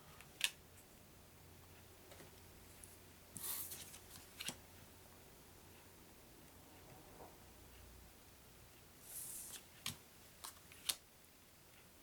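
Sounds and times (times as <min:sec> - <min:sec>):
cards sliding rustle: 0:09.0 - 0:11.0.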